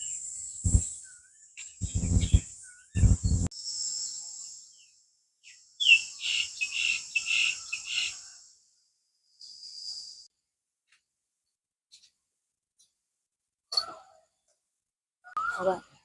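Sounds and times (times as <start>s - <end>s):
insects trilling: 1.6s - 4.8s, 5.8s - 8.5s
low rushing bursts: 1.8s - 2.4s, 3.0s - 3.5s
bird calling: 1.8s - 3.5s.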